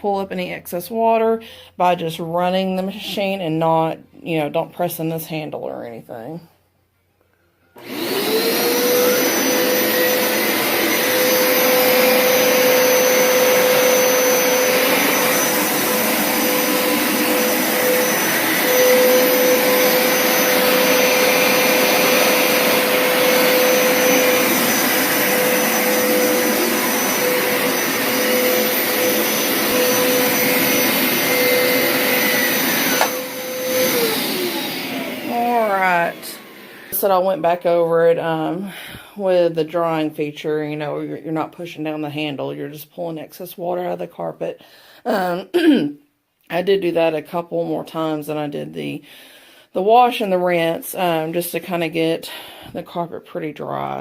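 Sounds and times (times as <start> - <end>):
carpet washer suction motor whine: 7.7 - 37.6.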